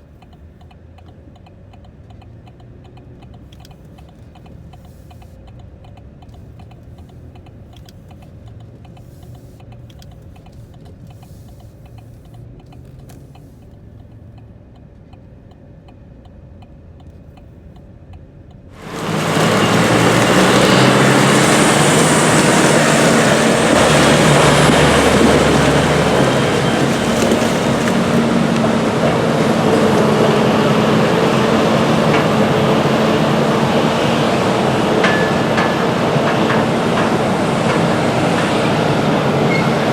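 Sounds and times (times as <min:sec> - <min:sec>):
light ticking: 0:00.0 - 0:18.8
farm machinery engine hum: 0:18.6 - 0:39.9.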